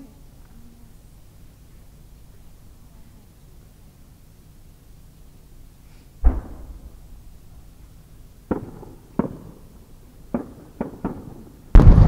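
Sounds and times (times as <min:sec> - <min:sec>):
firework launch thump: 0:06.2 - 0:07.1, 0:11.7 - 0:12.0
firework sharp pops: 0:06.2 - 0:07.3, 0:08.4 - 0:12.0
firework shell booming: 0:06.2 - 0:07.3, 0:08.5 - 0:09.6, 0:10.3 - 0:12.0.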